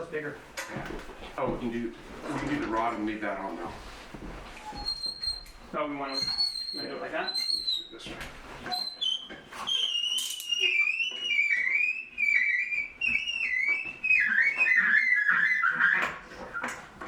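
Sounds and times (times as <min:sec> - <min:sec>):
dog whining: 0:09.6 - 0:16.8.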